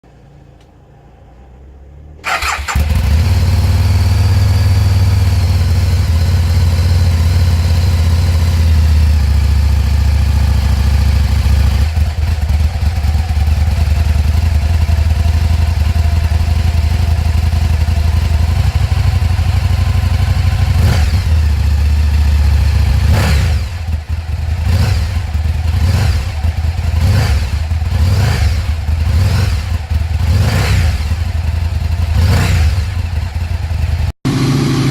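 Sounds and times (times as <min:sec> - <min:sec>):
motorcycle engine starting: 0:01.9 - 0:34.9
motorcycle engine short revs: 0:02.2 - 0:14.8, 0:17.0 - 0:34.9
motorcycle engine idling: 0:02.2 - 0:34.9.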